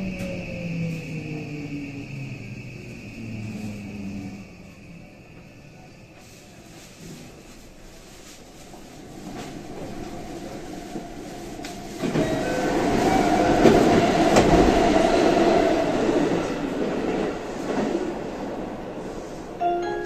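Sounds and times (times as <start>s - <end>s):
train wheels clattering on rail: 6.2s - 19.3s.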